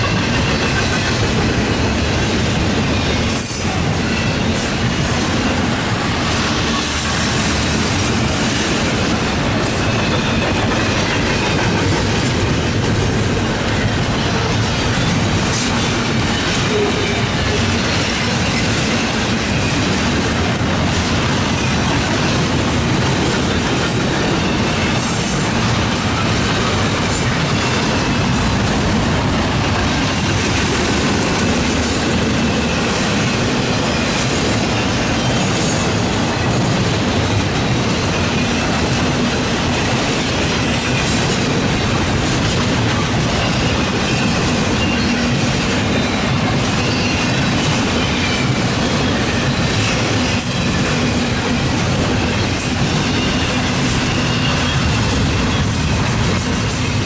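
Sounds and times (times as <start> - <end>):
steel wheels rumbling on rail: 0.0 - 57.0
faint high wheel squeal: 9.6 - 11.6, 43.3 - 51.4, 52.7 - 55.9.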